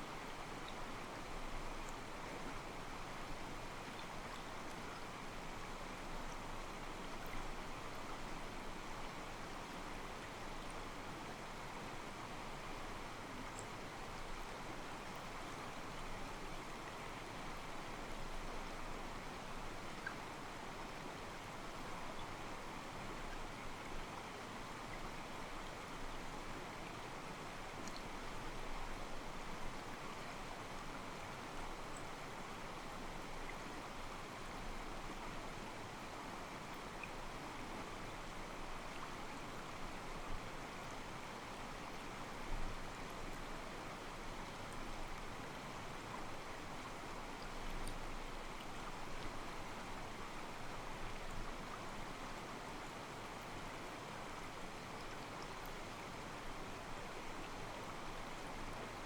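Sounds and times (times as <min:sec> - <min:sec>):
stream trickling over rocks: 0:24.7 - 0:59.0.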